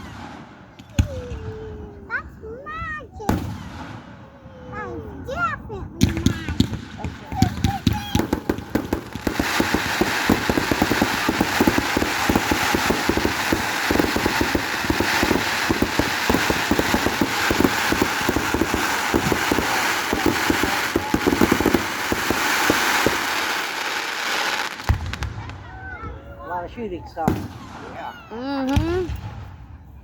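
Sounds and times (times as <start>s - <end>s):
fireworks crackling: 0.0s - 1.7s, 6.0s - 25.8s.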